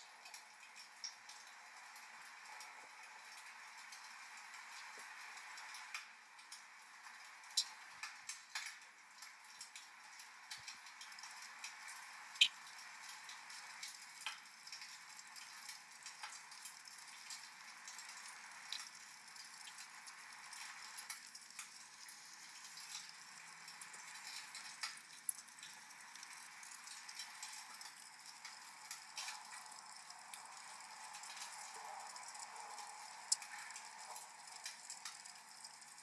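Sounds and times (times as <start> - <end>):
wood fire crackling: 0.0 - 36.0
rain hiss: 9.3 - 36.0.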